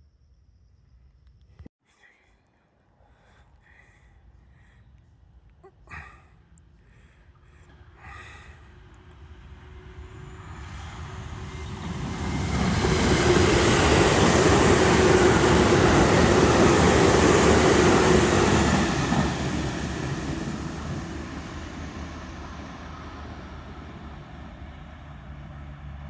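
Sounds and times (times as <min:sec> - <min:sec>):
rail noise: 0:07.2 - 0:26.0
electric train passing: 0:08.6 - 0:26.0.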